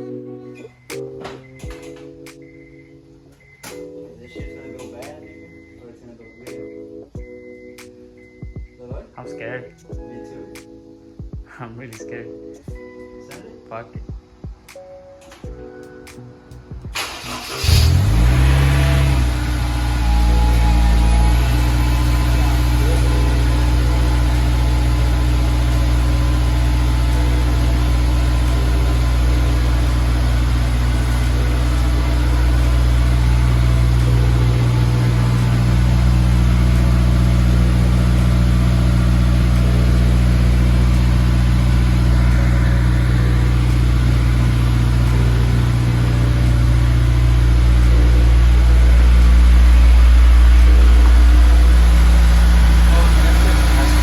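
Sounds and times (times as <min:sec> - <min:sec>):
car engine idling: 0:16.9 - 0:54.0.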